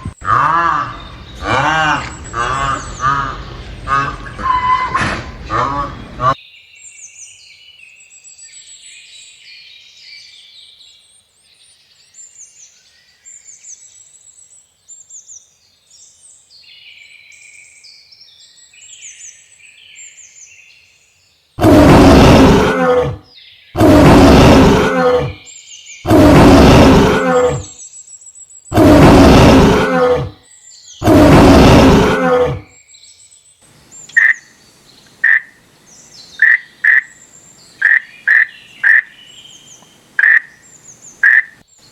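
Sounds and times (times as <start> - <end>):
faint birds chirping: 0.0 - 41.9
short sharp croaking calls: 0.1 - 6.4, 33.8 - 41.6
large animal roaring: 0.2 - 6.4, 21.6 - 23.2, 23.8 - 25.4, 26.1 - 27.7, 28.7 - 30.4, 31.0 - 32.7.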